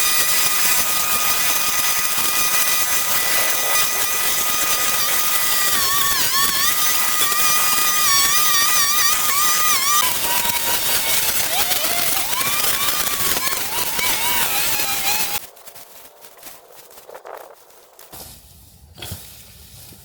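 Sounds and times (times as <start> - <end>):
power tool motor whining: 0.0 - 15.5.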